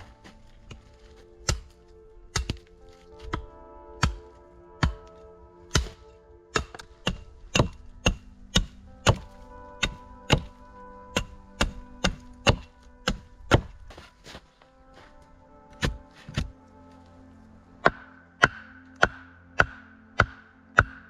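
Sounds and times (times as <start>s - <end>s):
soft background music: 0.0s - 21.0s
axe chopping wood: 2.3s - 3.4s, 5.7s - 6.0s, 6.6s - 10.5s, 11.1s - 13.8s, 15.7s - 16.6s, 17.8s - 21.0s.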